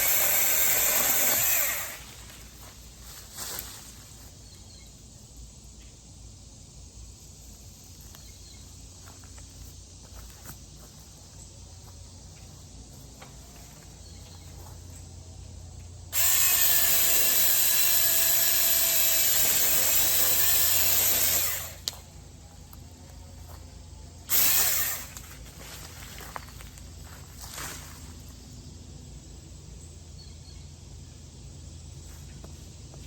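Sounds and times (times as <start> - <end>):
electric chainsaw cutting branch: 0.0 - 2.6, 16.1 - 22.1, 24.2 - 26.5.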